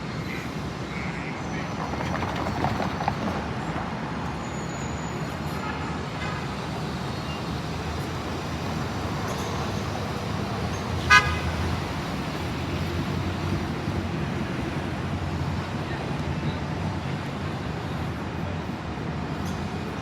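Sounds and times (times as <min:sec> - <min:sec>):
vehicle rumble: 0:01.3 - 0:05.5.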